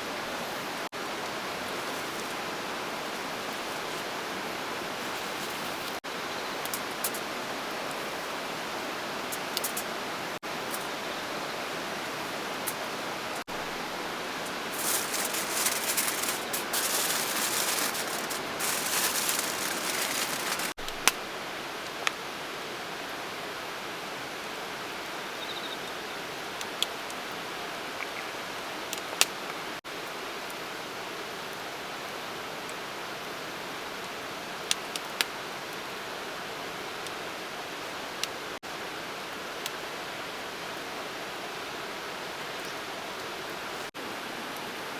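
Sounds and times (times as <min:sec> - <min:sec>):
rushing water: 0:00.0 - 0:25.1
rustling handling noise: 0:01.2 - 0:06.0, 0:12.7 - 0:21.2.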